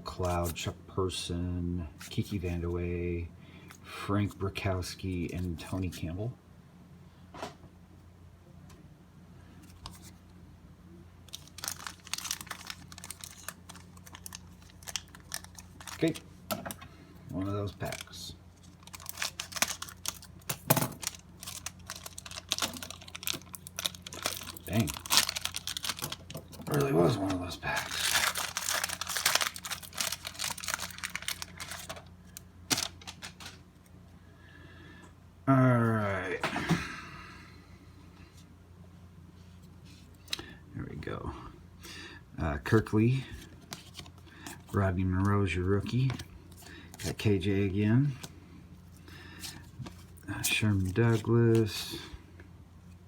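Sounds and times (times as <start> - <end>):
wrapper tearing and crinkling: 11.3 - 16.3, 17.5 - 33.6.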